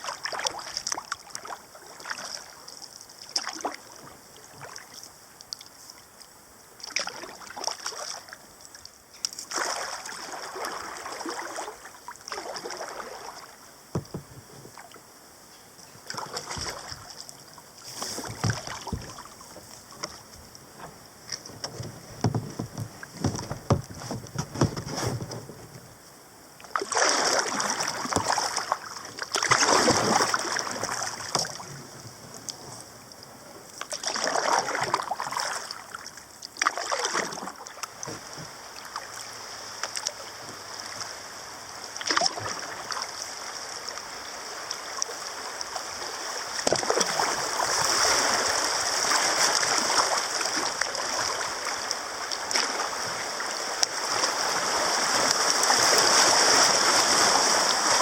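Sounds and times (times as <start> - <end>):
paddle swishing and splashing water: 0.0 - 15.0, 15.9 - 26.0, 26.6 - 58.0
knocks: 13.9 - 14.4, 21.6 - 24.9.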